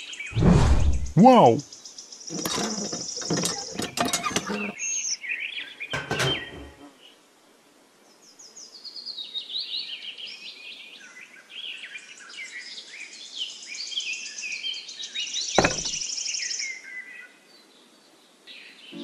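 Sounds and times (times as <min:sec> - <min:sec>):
sharp thump: 0:00.4 - 0:01.2, 0:15.6 - 0:16.0
birds chirping and singing: 0:02.1 - 0:06.8.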